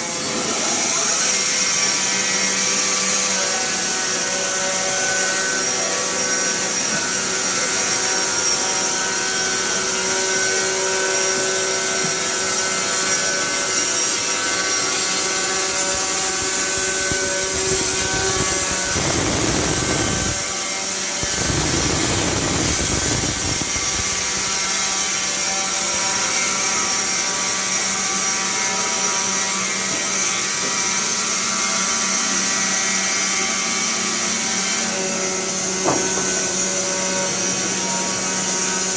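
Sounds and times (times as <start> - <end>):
sawmill machine whine and hum: 0.0 - 30.0.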